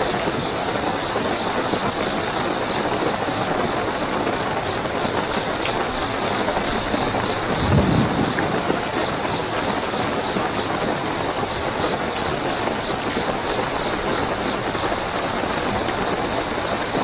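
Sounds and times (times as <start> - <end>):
heavy rainfall: 0.0 - 17.0
high cricket trill: 0.0 - 17.0
low rumble: 7.6 - 8.8.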